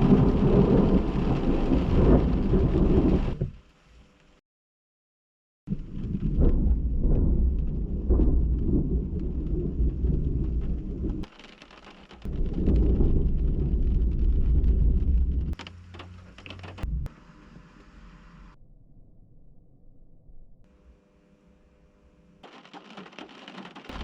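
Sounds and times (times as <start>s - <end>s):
deep thunder peals: 0.0s - 3.5s, 5.7s - 11.3s, 12.3s - 15.6s
rain falling: 0.0s - 4.4s, 5.7s - 18.5s, 22.4s - 24.0s.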